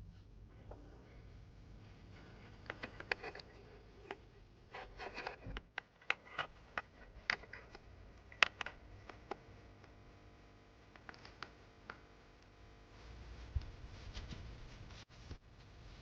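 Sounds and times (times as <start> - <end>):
light clicks and taps: 4.8 - 10.0.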